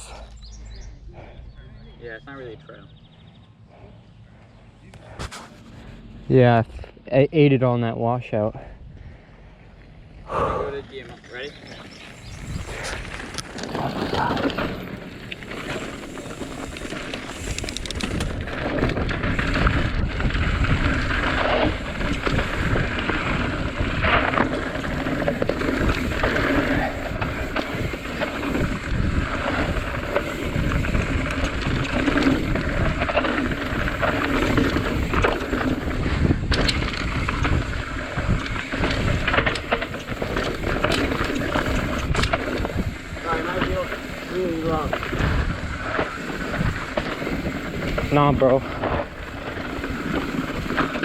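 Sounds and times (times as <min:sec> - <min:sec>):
bike tyres rolling over dirt: 0:00.0 - 0:51.0
bike rattling and clattering: 0:10.9 - 0:51.0.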